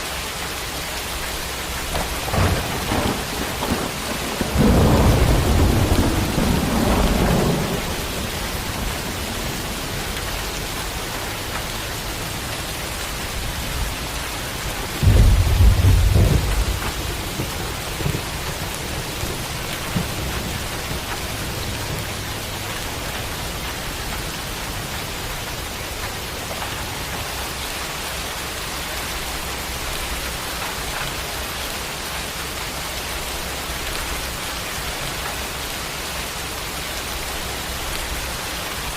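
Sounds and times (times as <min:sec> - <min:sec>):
rain hissing: 0:00.0 - 0:38.9
thunder rumbling: 0:01.4 - 0:32.1
loud peal of thunder: 0:02.0 - 0:09.8, 0:15.0 - 0:21.2.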